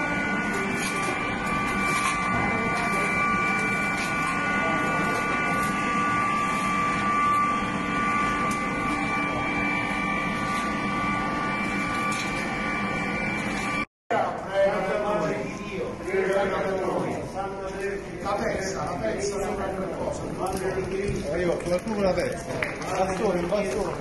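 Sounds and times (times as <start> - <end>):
high whining tones: 0.0 - 13.9
machinery drone: 0.0 - 24.0.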